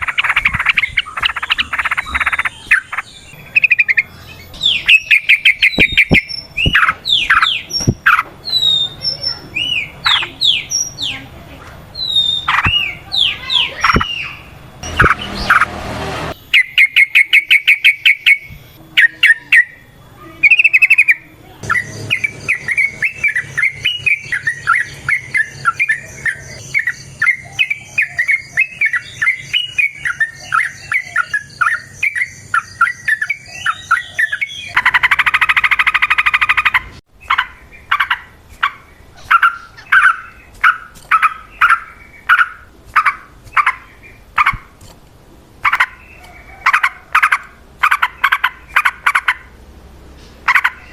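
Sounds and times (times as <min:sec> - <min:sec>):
loud bird chirps: 0:00.0 - 0:11.3, 0:11.9 - 0:15.7, 0:16.3 - 0:44.7, 0:45.6 - 0:49.6, 0:50.2 - 0:50.9
bulbuls chattering chirps: 0:00.0 - 0:44.8, 0:45.5 - 0:50.9
harsh buzzing burst: 0:13.9 - 0:16.8.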